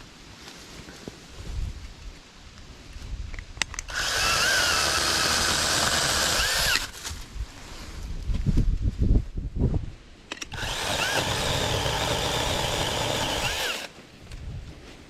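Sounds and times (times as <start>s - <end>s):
electric chainsaw whining: 3.9s - 7.0s, 10.5s - 13.9s.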